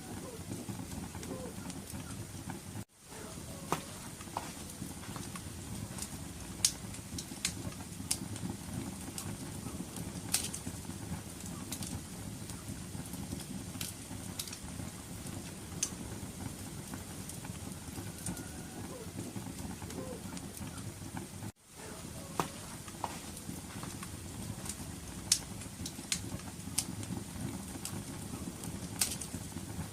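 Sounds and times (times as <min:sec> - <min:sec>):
fire crackling and popping: 0:00.0 - 0:29.9
low rumble of flames: 0:00.0 - 0:29.9.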